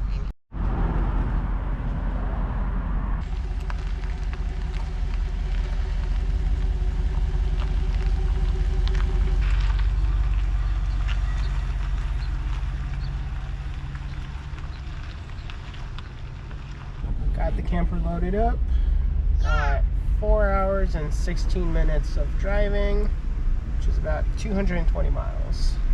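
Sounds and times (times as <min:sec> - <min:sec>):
vehicle road and engine rumble: 0:00.0 - 0:25.9
small ticks and rattles: 0:03.2 - 0:17.0.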